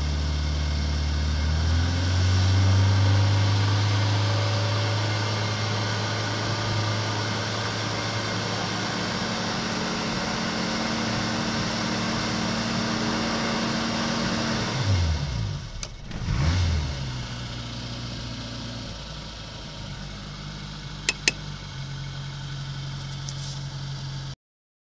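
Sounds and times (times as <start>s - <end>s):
car engine idling: 4.9s - 14.0s, 17.2s - 24.3s.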